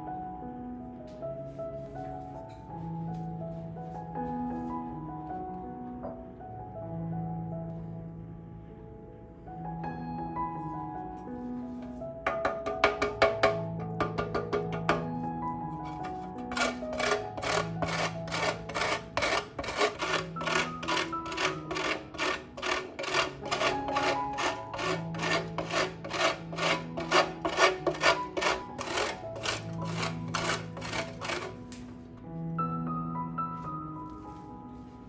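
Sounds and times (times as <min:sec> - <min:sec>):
soft background music: 0:00.0 - 0:35.0
rhythmic scraping strokes: 0:15.8 - 0:31.8.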